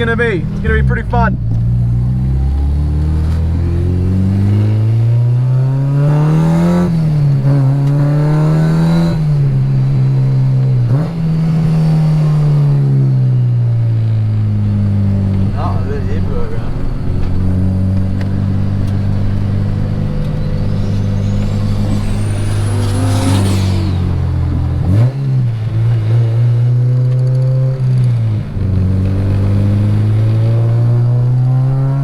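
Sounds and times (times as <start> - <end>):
car engine at low revs: 0.0 - 32.0
thin high whine: 19.0 - 24.7.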